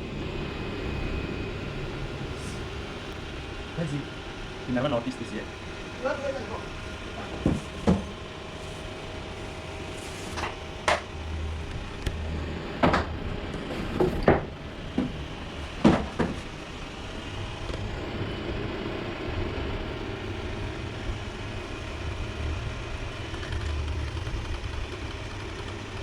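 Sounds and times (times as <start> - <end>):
robot vacuum motor hum: 2.2 - 26.0
sharp knocks: 7.2 - 8.2, 15.8 - 16.5.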